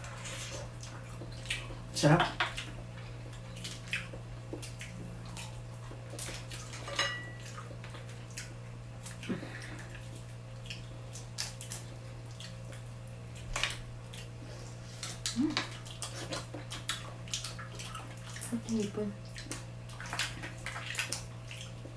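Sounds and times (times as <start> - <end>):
shelling and chewing shrimp: 0.0 - 21.9
steady low hum: 0.0 - 21.9
dishes and cutlery clinking: 6.8 - 7.5.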